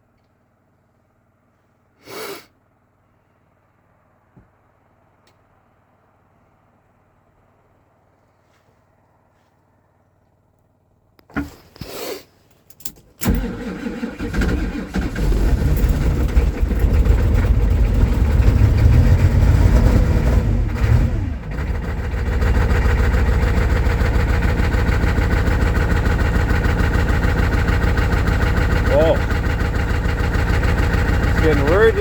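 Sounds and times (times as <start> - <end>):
diesel engine cranking and idling: 12.7 - 32.0.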